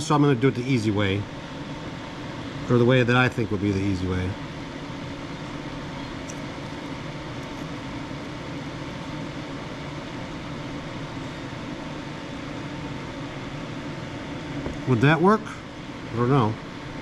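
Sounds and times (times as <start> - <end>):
fan humming: 0.0 - 17.0.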